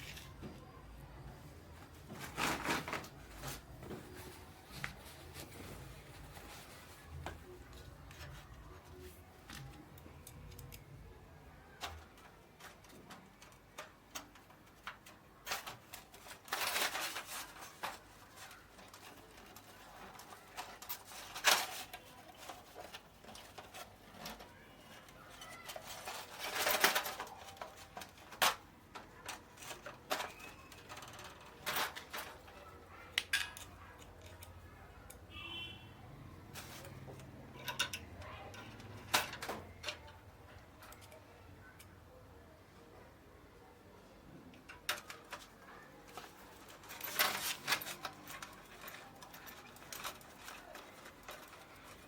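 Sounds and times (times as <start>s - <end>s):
scraping noises: 1.8s - 9.7s, 15.4s - 34.9s, 36.4s - 41.2s
small parts clicking and tapping: 6.5s - 35.4s, 36.4s - 42.1s, 44.5s - 52.0s.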